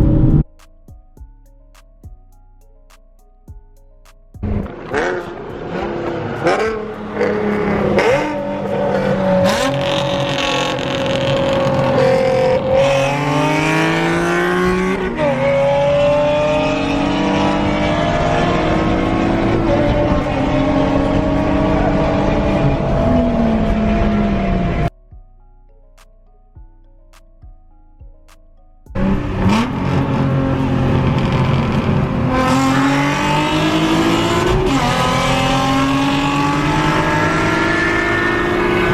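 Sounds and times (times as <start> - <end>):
car engine accelerating hard: 4.4 - 24.9, 29.0 - 38.9.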